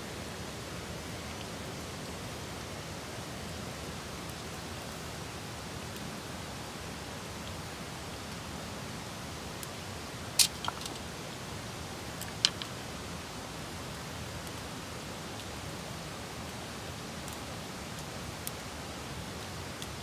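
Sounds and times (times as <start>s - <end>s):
background hiss: 0.0s - 17.6s
faint ticks: 12.2s - 12.7s.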